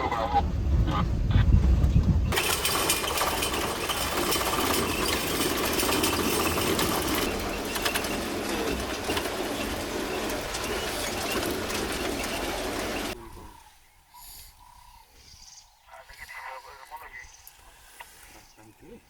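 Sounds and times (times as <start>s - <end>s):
low rumble: 0.0s - 2.4s
many birds clicking and calling: 2.3s - 19.0s.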